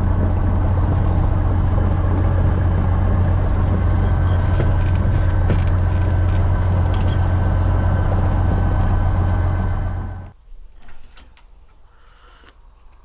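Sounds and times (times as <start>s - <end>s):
airplane engine and propeller drone: 0.0s - 10.3s.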